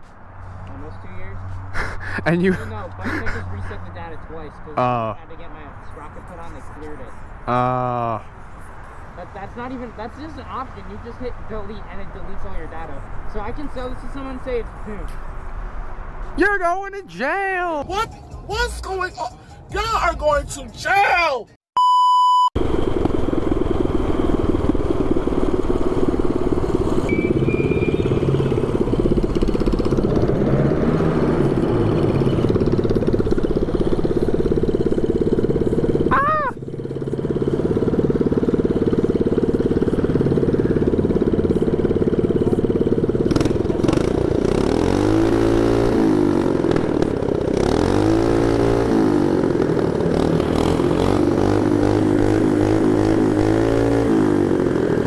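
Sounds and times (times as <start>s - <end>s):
mini bike engine revving: 22.6s - 55.0s.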